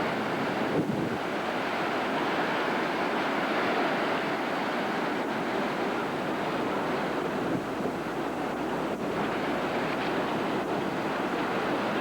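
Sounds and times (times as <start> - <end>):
wind buffeting microphone: 0.0 - 2.6
heavy surf: 0.0 - 12.0.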